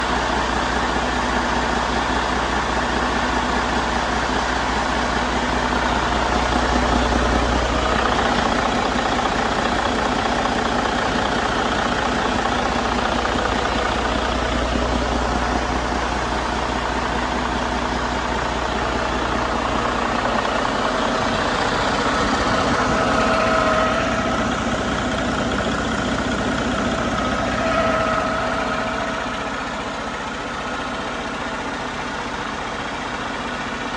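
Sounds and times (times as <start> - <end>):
diesel engine droning: 0.0 - 33.9
faint whine: 18.8 - 32.5.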